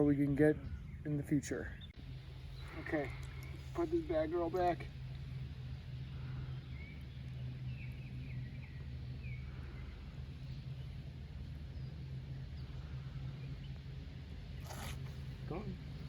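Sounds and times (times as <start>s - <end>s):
steady low hum: 0.0s - 16.0s
faint bird chirps: 6.0s - 16.0s.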